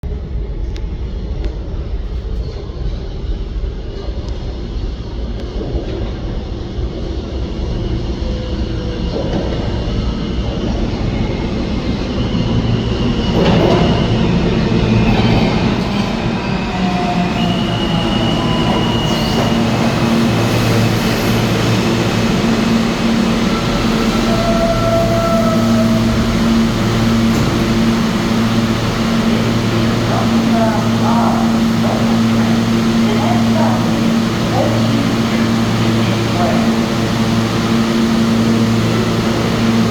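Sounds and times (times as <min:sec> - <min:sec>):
subway train rumbling: 0:00.0 - 0:39.9
whining motor tones: 0:12.3 - 0:39.9.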